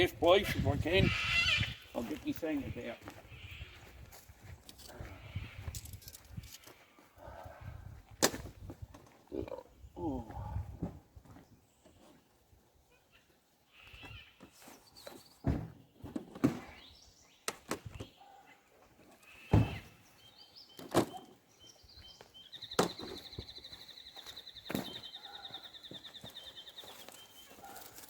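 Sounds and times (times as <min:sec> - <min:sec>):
sharp knocks and thunks: 0:15.4 - 0:16.8, 0:19.5 - 0:19.9.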